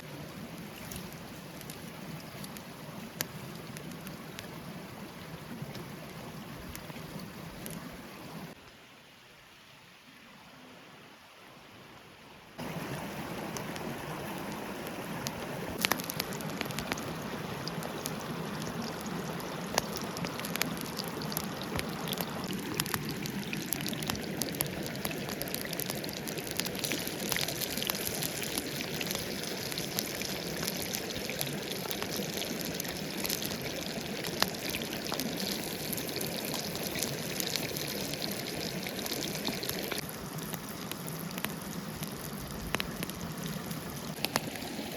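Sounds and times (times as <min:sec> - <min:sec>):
food frying in hot oil: 0:15.8 - 0:44.9.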